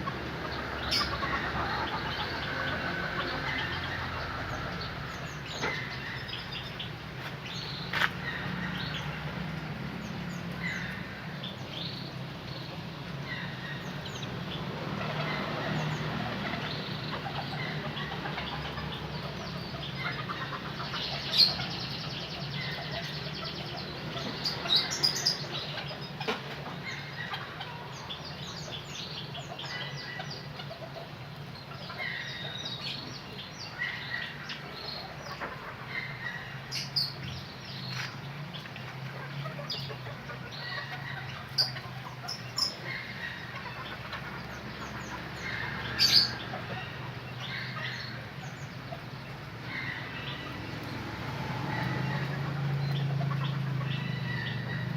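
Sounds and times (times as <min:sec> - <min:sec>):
canaries chirping: 0:00.0 - 0:54.9.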